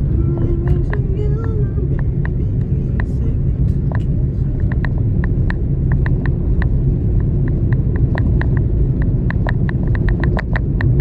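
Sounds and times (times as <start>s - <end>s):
road rumble inside car: 0.0s - 11.0s
short irregular ticks and clicks: 3.8s - 11.0s.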